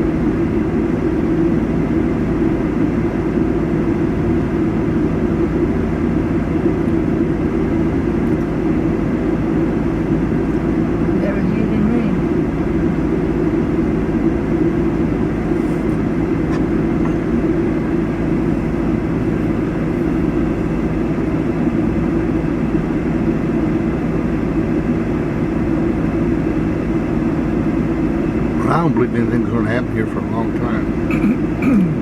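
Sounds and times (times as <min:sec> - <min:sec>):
vehicle engine rumbling: 0:00.0 - 0:32.0.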